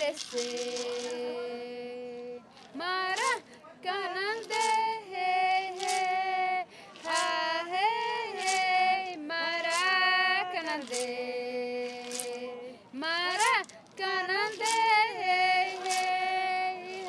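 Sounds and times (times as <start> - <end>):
high voice singing unaccompanied: 0.0 - 17.0
person breathing: 6.7 - 7.0.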